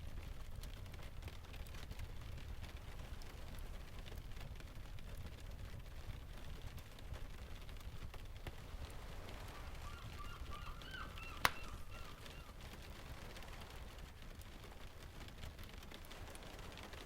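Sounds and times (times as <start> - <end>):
low rumble of surf: 0.0 - 17.0
rain ticks: 0.0 - 17.0
short bird calls: 9.5 - 12.6.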